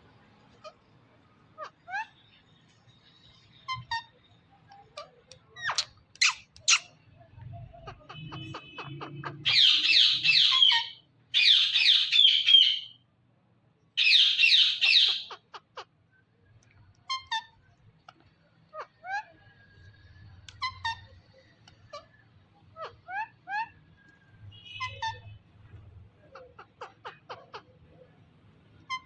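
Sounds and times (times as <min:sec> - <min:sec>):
parrot chirps and clicks: 0:04.7 - 0:06.9
parrot squawking harshly: 0:05.6 - 0:06.9, 0:07.9 - 0:12.9, 0:14.0 - 0:15.9.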